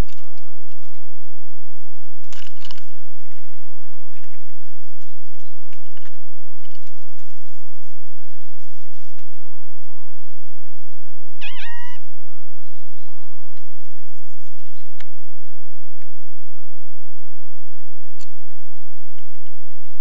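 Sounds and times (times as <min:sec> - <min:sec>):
wavering bird call: 0:11.4 - 0:12.1.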